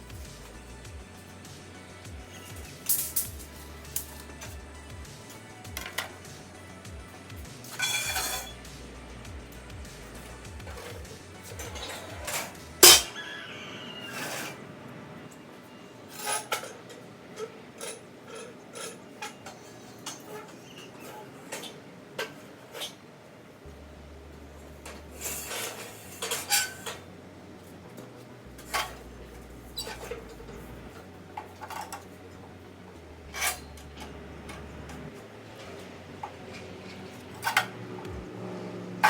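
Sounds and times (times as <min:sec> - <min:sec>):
hard objects clicking and clinking: 0:02.3 - 0:04.6, 0:05.6 - 0:06.3
loud clanks: 0:11.8 - 0:13.2.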